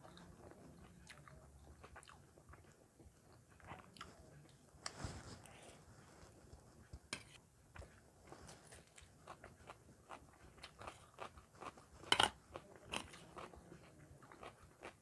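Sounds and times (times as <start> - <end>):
chewing with crunches: 0.0 - 4.6, 7.8 - 15.0
cutlery scraping on steel plate: 12.1 - 12.4.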